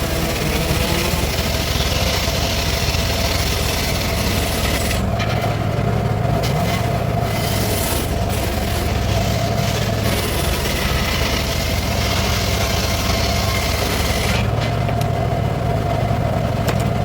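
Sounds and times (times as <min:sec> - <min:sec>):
circular saw running: 0:00.0 - 0:05.0
saw blade cutting wood: 0:00.0 - 0:05.0, 0:06.4 - 0:14.5.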